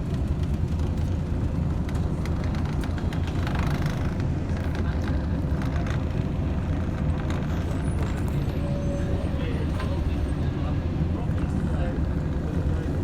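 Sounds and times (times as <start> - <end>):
bus engine rumble: 0.0 - 13.0.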